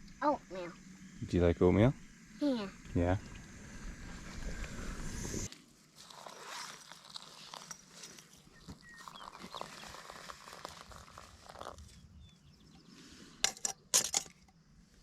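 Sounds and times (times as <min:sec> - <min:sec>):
faint rustling and handling: 0:05.5 - 0:12.0.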